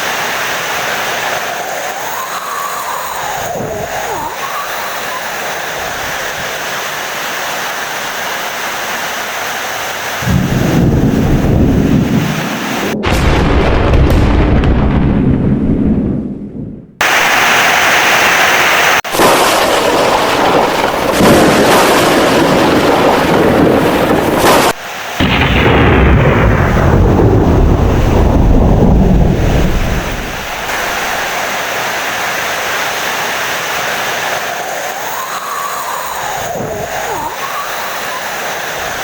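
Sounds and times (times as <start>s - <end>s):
heavy rain: 0.0s - 13.0s, 17.0s - 39.0s
thunder rumbling: 10.2s - 17.5s, 19.1s - 32.0s, 34.1s - 39.0s.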